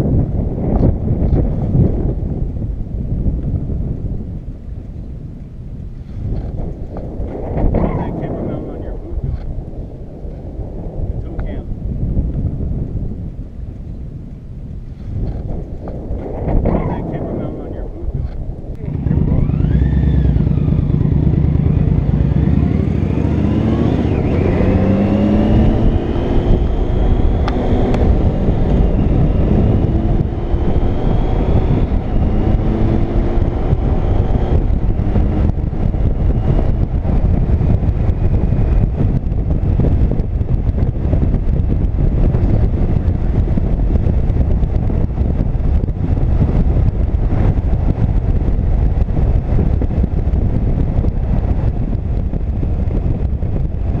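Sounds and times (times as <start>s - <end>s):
wind noise: 0.0s - 54.0s
motorcycle engine: 15.2s - 54.0s.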